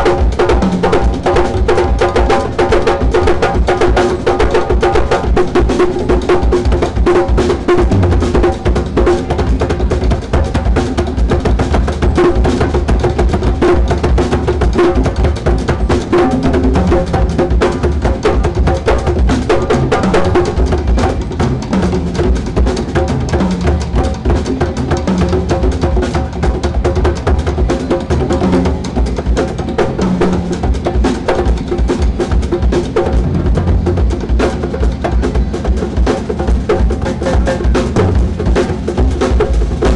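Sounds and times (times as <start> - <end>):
drum kit: 0.0 - 39.9
hand percussion: 0.0 - 39.9
bass line: 7.8 - 9.7, 33.0 - 34.4.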